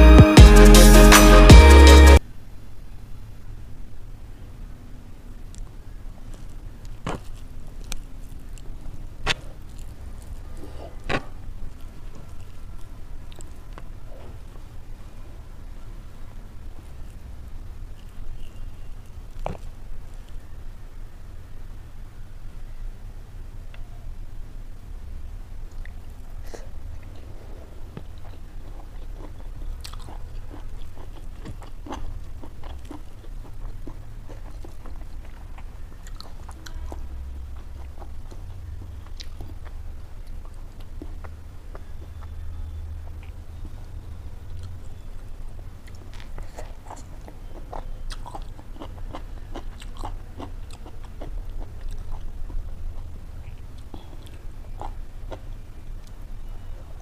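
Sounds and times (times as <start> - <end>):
person chewing and biting food: 27.0 - 42.4, 45.8 - 56.2.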